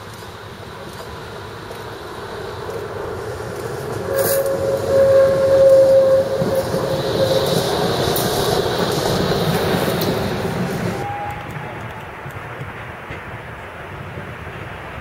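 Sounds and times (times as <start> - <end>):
tram running on rails: 0.0 - 15.0
tram whine: 0.0 - 15.0.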